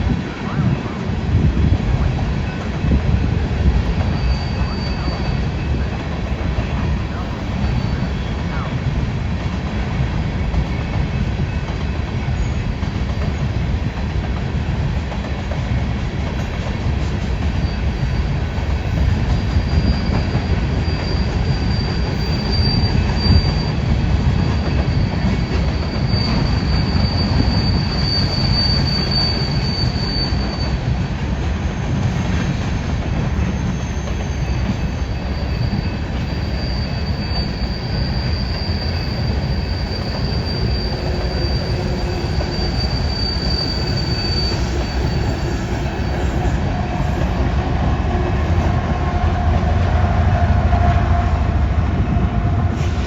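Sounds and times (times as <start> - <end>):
train wheels rumbling on rail: 0.0 - 53.0
high wheel squeal: 4.0 - 8.8, 17.4 - 31.0, 31.7 - 47.5.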